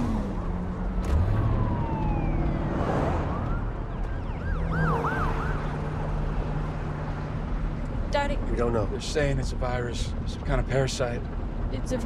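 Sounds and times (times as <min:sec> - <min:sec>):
emergency vehicle sirens: 0:00.0 - 0:07.7.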